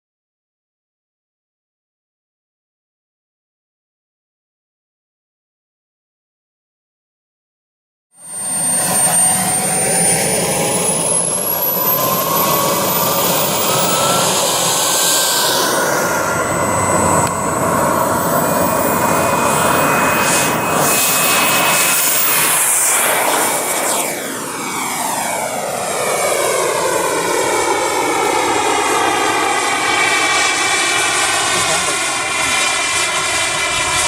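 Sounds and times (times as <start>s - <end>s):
model jet engine whine: 8.2s - 34.0s
loud rushing noise: 10.7s - 24.4s.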